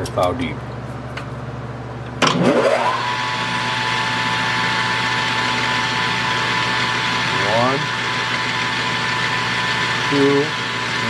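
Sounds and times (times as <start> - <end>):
lathe motor whining: 2.2 - 11.0.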